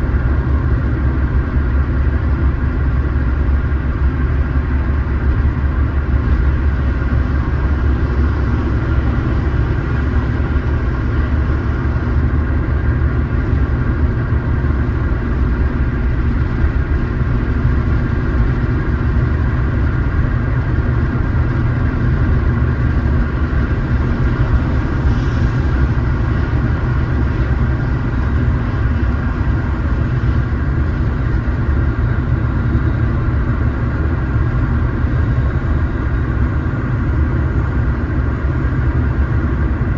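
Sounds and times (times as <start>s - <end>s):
car engine and road drone: 0.0s - 39.9s.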